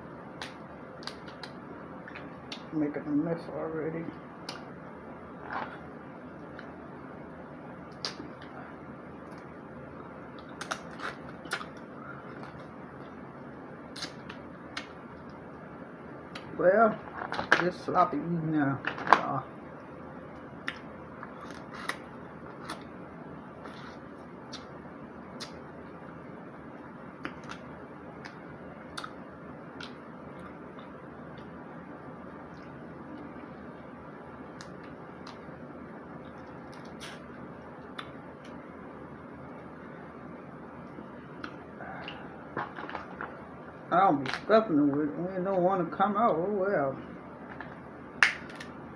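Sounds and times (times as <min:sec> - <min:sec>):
steady background noise: 0:00.0 - 0:48.9
steady low hiss: 0:00.0 - 0:48.9
crab shells cracking: 0:47.5 - 0:48.7.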